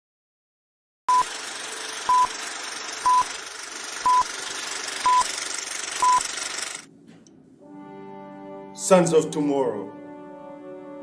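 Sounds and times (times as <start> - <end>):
electronic beep: 2.1 - 2.3, 3.0 - 3.3, 4.0 - 4.3, 5.0 - 5.3, 6.0 - 6.3.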